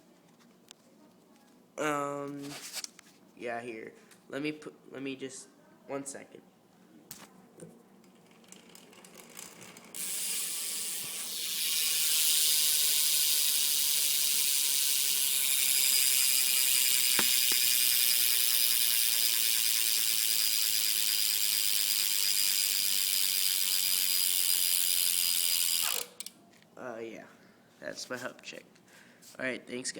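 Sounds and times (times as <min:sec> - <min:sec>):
bicycle hub ratcheting buzz: 0:08.0 - 0:26.4.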